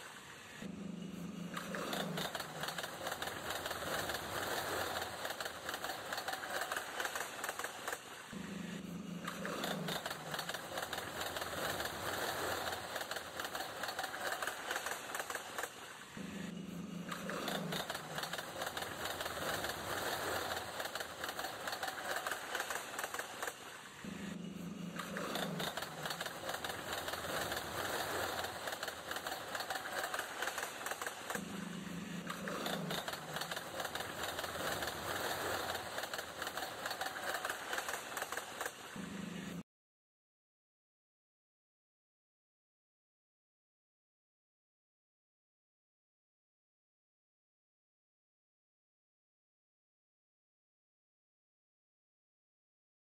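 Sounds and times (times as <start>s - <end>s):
train wheels clattering on rails: 25.2s - 31.4s, 32.3s - 38.9s.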